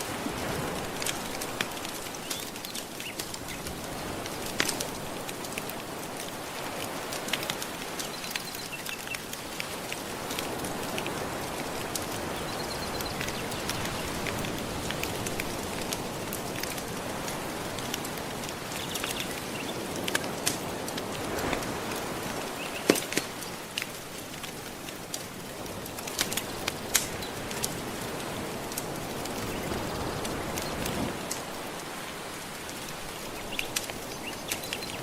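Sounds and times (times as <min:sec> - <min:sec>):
gentle ocean waves: 0:00.0 - 0:35.0
wood fire crackling: 0:00.0 - 0:35.0.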